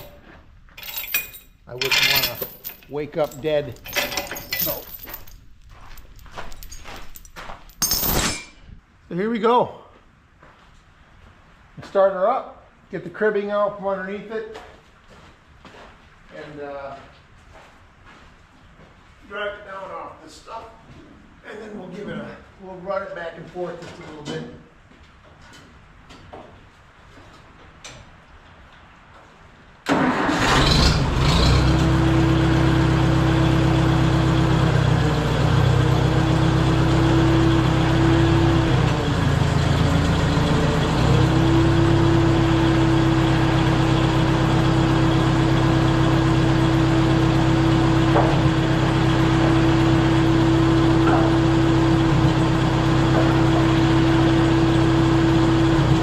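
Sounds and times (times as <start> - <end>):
bulldozer engine running: 29.9 - 56.0.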